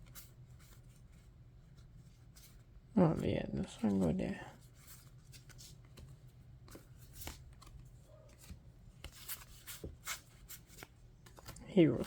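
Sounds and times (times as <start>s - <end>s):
low room hum: 0.0s - 12.0s
cards rustling and tapping: 3.8s - 12.0s.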